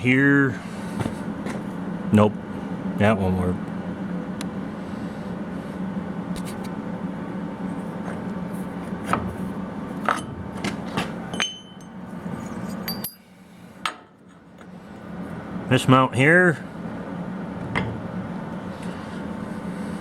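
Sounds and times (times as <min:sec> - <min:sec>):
steady hum: 0:00.0 - 0:20.0
metal brackets clanking: 0:11.3 - 0:13.3.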